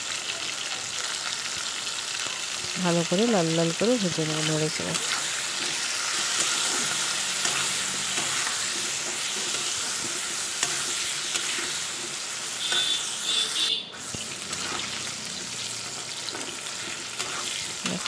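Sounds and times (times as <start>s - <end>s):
food sizzling in hot oil: 0.0s - 18.0s
metal spatula scraping pan: 5.0s - 13.5s, 14.1s - 18.0s.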